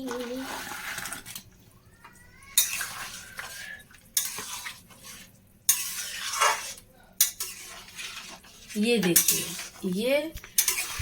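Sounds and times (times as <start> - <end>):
spatula scraping cooking pan: 2.5 - 11.0.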